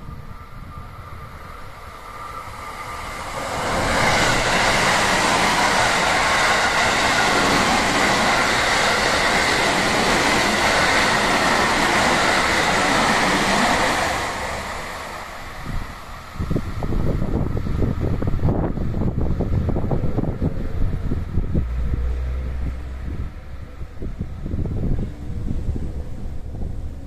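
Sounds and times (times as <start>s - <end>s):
rushing wheel-on-rail noise: 0.0s - 27.0s
steady high ring: 21.4s - 27.0s.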